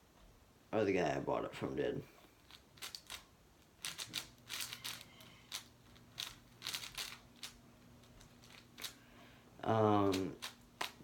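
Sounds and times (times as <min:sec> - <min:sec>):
plastic cube clicking turns: 0:03.8 - 0:07.6.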